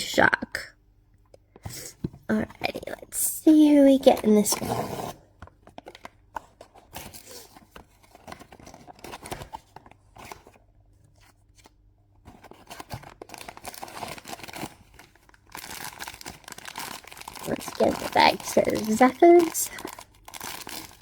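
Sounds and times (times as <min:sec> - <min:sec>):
cardboard rustling: 0:03.8 - 0:21.0
cardboard seal tearing: 0:04.4 - 0:05.2, 0:12.4 - 0:21.0.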